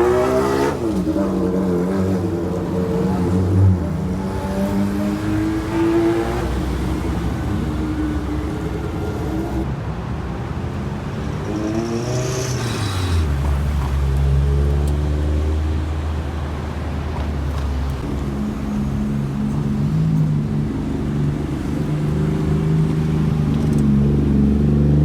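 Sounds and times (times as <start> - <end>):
engine revving: 0.0 - 9.8, 11.3 - 16.1
car engines driving slowly: 0.0 - 25.0.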